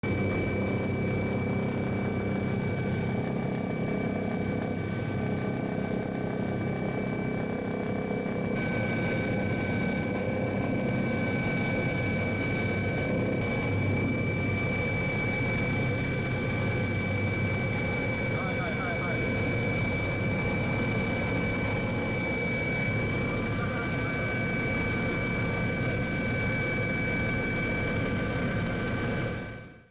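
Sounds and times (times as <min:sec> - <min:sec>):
constant high whine: 0:00.0 - 0:29.9
helicopter engine and rotor: 0:00.0 - 0:29.9.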